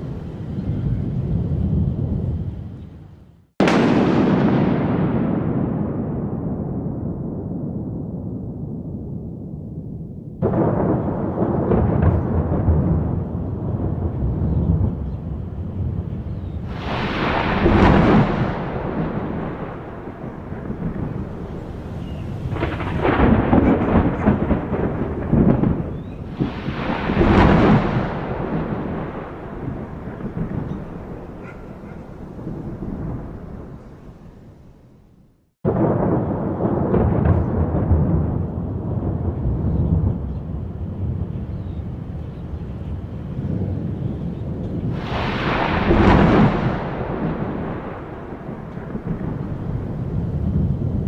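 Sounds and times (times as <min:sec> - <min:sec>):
thunder rumbling: 0:00.0 - 0:51.0
rain hissing: 0:16.6 - 0:35.2, 0:44.5 - 0:51.0.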